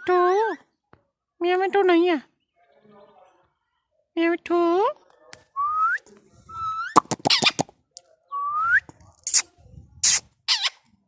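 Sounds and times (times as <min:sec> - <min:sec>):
parrot squawking: 0:06.7 - 0:07.7, 0:10.0 - 0:10.8.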